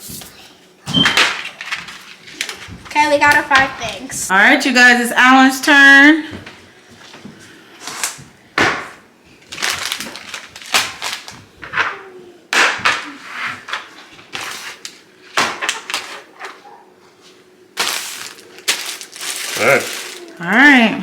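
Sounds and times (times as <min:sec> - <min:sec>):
packaging crinkling and rustling: 0:01.2 - 0:03.6, 0:09.4 - 0:11.7, 0:13.7 - 0:16.3, 0:17.8 - 0:20.9.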